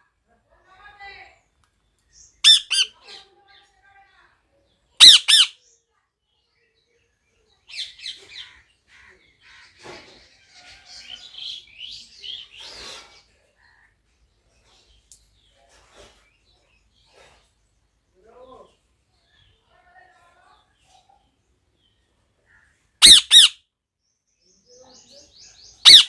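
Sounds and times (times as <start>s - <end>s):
parrot chattering softly: 2.4s - 3.0s, 5.0s - 5.5s, 23.0s - 23.6s
parrot squawking loudly: 2.4s - 3.0s, 5.0s - 5.6s, 23.0s - 23.6s.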